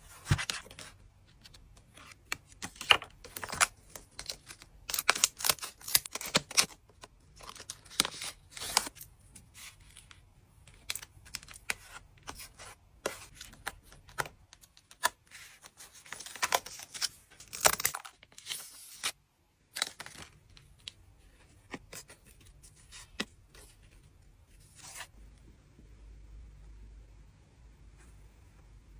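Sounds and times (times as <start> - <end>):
cards rustling and clicking: 0.2 - 19.2, 19.8 - 24.0.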